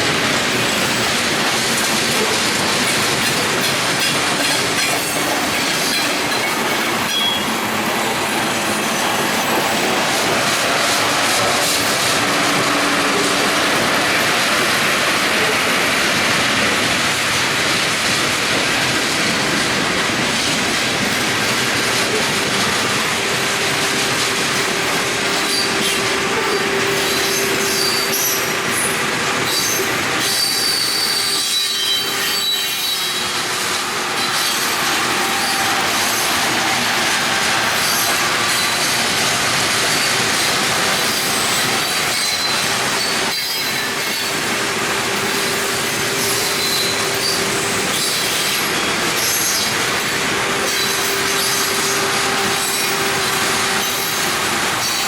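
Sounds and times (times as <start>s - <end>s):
train wheels rumbling on rail: 0.0s - 55.0s
wheels squealing: 25.3s - 33.5s.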